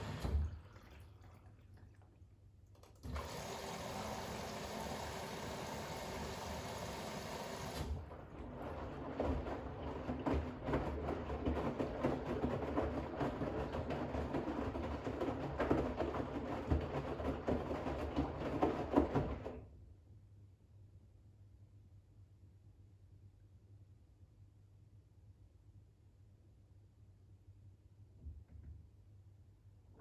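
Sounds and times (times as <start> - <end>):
washing machine drum sloshing: 0.0 - 2.2, 3.0 - 19.6
water inlet hissing: 3.2 - 7.9
knocks in washing drum: 8.7 - 19.6.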